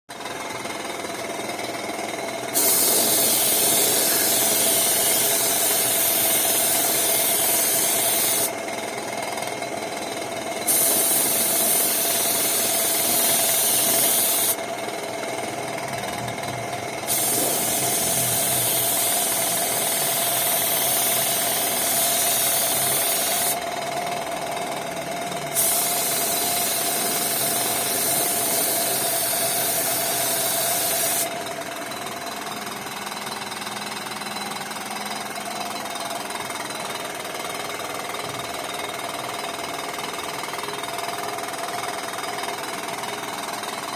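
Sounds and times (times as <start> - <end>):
mechanical hum: 0.1 - 43.9
compressed air hissing: 2.5 - 8.5, 10.7 - 14.6, 17.0 - 23.6, 25.5 - 31.3.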